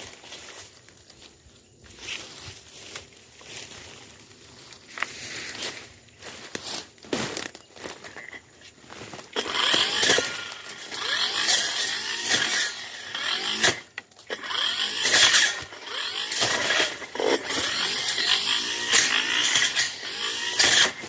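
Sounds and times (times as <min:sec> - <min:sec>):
brush cutter engine cutting brush: 0:04.6 - 0:21.0.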